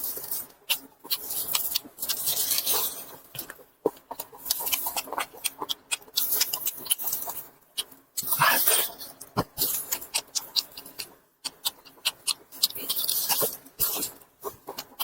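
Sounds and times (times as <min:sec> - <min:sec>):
close chewing with mouth smacks: 0:00.0 - 0:15.0
slurping hiss: 0:08.2 - 0:09.0.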